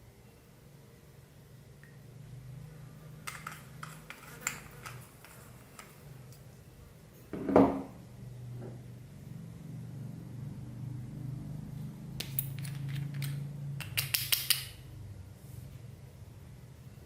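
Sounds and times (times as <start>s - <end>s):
small hard objects clicking: 12.2s - 14.8s.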